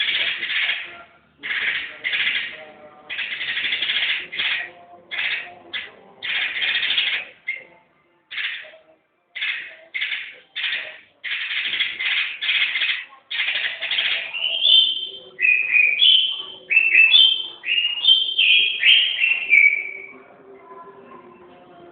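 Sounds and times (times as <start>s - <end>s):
songbird singing: 0.0s - 21.9s.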